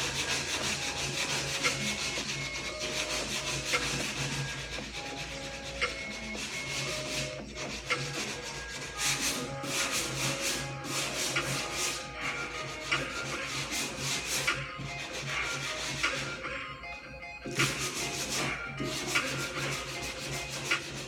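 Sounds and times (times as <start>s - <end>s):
sandpaper rubbing on metal: 0.0s - 16.5s, 17.5s - 21.0s
background music: 0.0s - 21.0s.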